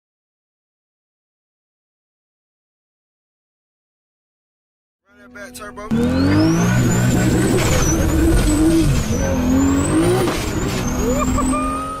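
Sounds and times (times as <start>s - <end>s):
turbocharged engine revving: 5.8s - 12.0s.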